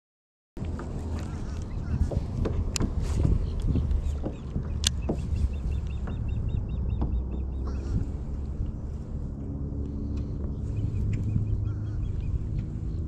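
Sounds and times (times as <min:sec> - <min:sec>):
low rumble: 0:00.6 - 0:13.0
bird clucking call: 0:01.1 - 0:02.6.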